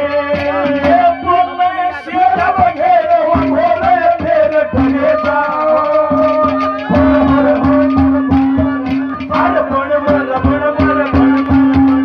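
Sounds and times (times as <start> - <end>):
fast hand drum beat: 0.0 - 12.0
held melody notes: 6.6 - 9.5.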